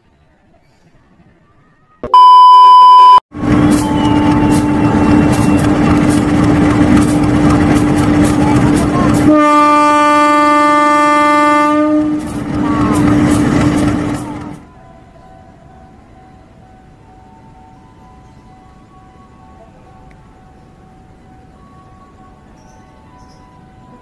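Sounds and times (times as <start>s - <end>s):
passenger train passing: 3.4s - 24.0s
locomotive horn: 3.5s - 6.0s, 9.2s - 13.2s
wheels clicking over rail joints: 3.7s - 9.3s.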